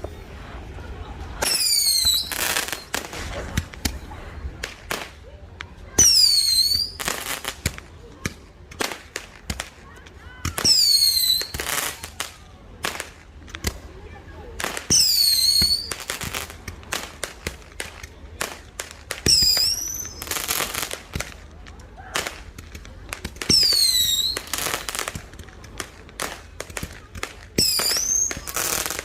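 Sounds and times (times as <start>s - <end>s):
firework hiss: 1.4s - 5.2s, 14.6s - 21.5s, 22.1s - 29.0s
firework pops and crackles: 1.4s - 29.0s.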